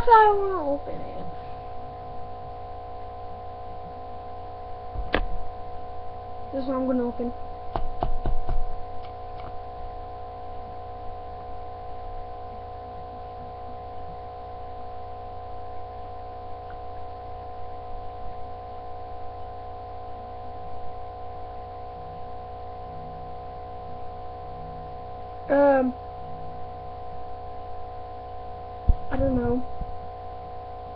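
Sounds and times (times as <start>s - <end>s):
steady hum over low drone: 0.0s - 8.0s, 8.6s - 30.9s.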